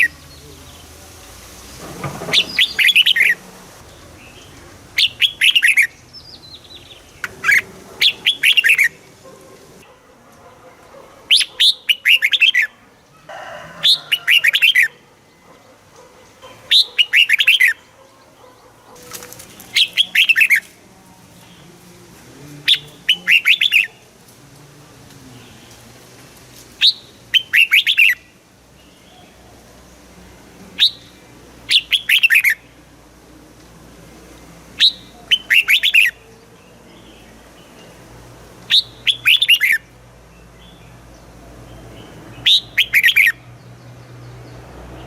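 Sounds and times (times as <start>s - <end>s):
bird singing chirpy phrases: 2.4s - 9.8s, 11.3s - 12.8s, 16.2s - 21.9s, 22.6s - 24.1s, 26.8s - 30.1s, 30.7s - 32.9s, 34.8s - 45.0s.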